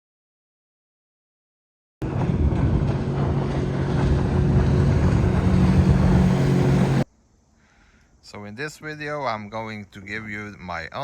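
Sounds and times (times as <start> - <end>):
rushing water: 2.0 - 7.0
motorboat engine drone: 2.0 - 7.1
wind: 2.0 - 11.0.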